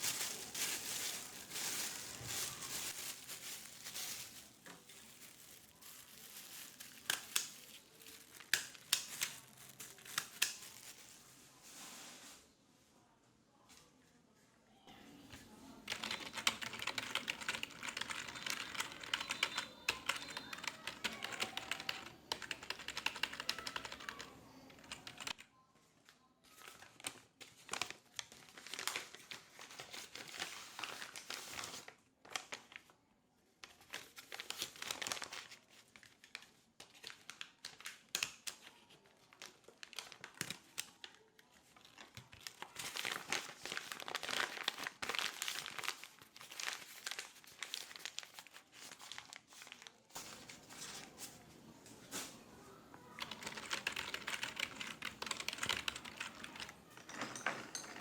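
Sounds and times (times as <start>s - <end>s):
computer keyboard typing: 15.9s - 25.4s, 53.2s - 58.0s.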